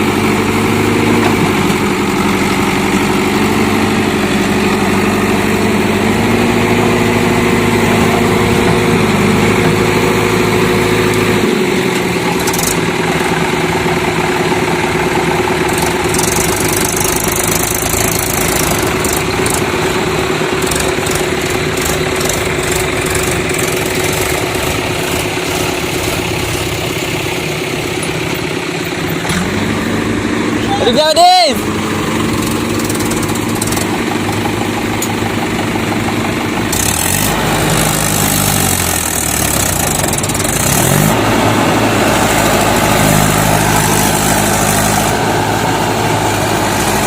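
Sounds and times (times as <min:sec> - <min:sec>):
heavy machinery diesel engine: 0:00.0 - 0:47.0.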